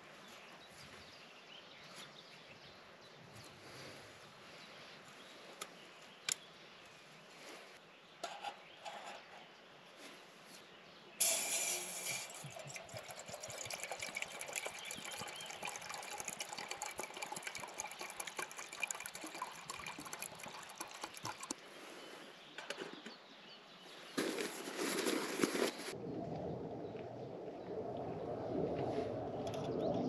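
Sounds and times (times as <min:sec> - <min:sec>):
water pouring: 0:11.2 - 0:21.6.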